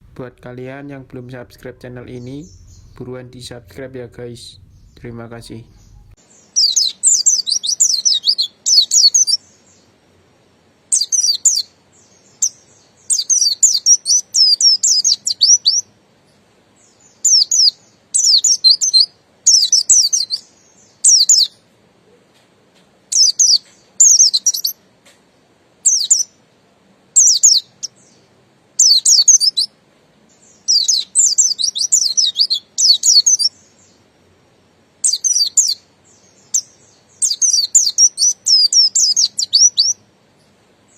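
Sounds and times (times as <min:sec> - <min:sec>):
bird singing high twittering notes: 0:00.0 - 0:09.4, 0:30.6 - 0:34.0, 0:35.0 - 0:40.0.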